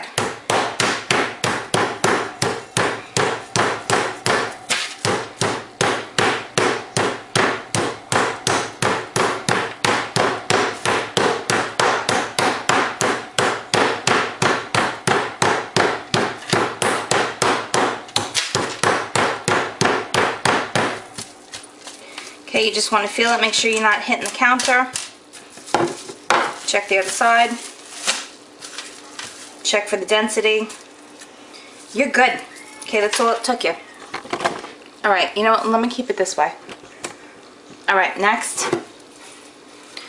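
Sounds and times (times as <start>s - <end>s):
meat tenderizer pounding chicken: 0.0s - 21.7s.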